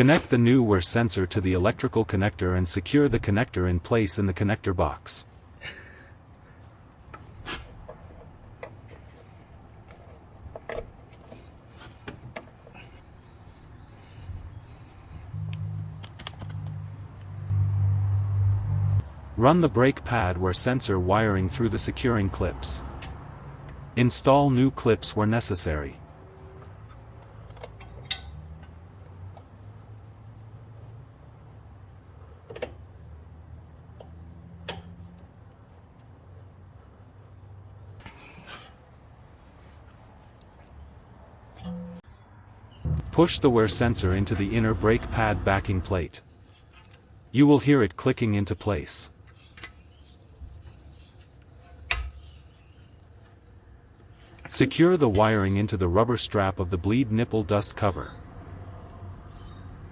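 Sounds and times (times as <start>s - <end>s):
low steady rumble: 15.3s - 20.2s.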